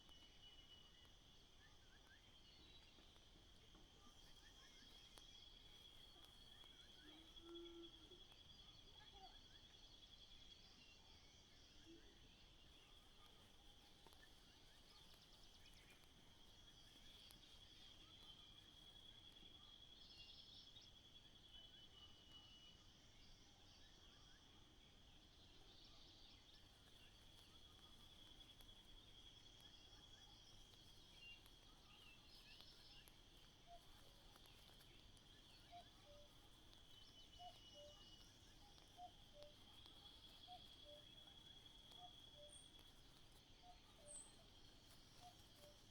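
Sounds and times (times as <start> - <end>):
insect trilling: 26.5 - 45.9
faint short chirps: 30.6 - 45.9.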